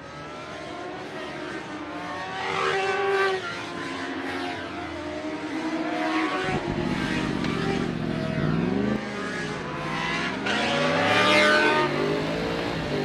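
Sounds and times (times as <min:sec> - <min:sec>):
motorbike engine revving: 0:04.8 - 0:13.0.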